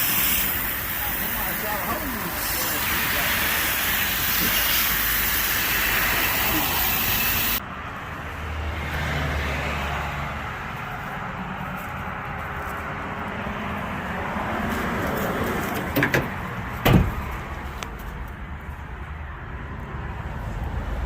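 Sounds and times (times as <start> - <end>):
high-pressure water spray hissing: 0.0 - 7.6.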